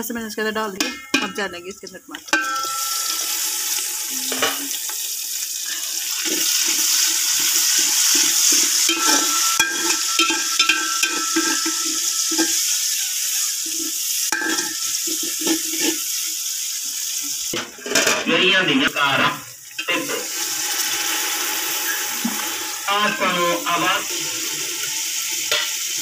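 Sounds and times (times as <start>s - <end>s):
food sizzling in hot oil: 0.7s - 18.2s, 18.8s - 26.0s
metal spoon scraping pot: 2.3s - 4.8s, 6.2s - 13.7s, 14.4s - 16.1s.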